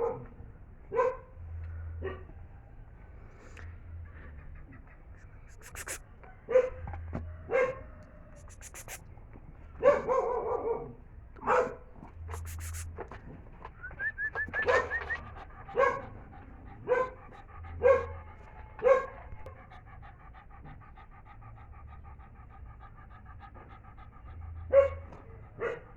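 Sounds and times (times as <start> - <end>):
puppy barking and yelping: 9.8 - 12.9, 14.2 - 25.9
puppy whining: 13.8 - 25.8.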